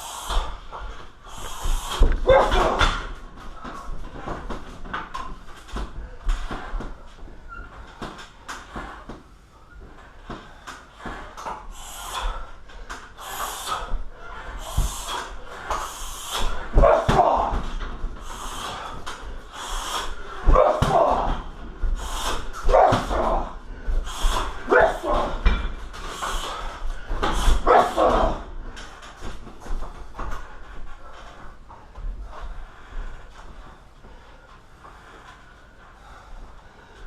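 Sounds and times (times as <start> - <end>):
hissing exhale and grunt: 0.0 - 3.1, 11.0 - 28.6
punches thudding into heavy bag: 16.5 - 17.9, 20.4 - 21.5, 22.6 - 23.6.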